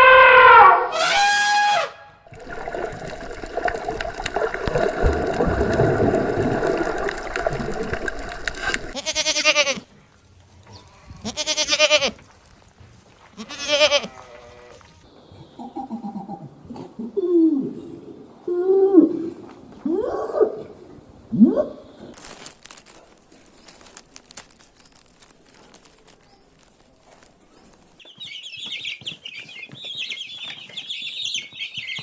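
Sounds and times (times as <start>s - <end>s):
sheep or goat bleating: 8.9s - 9.9s, 10.7s - 12.3s, 13.3s - 14.9s.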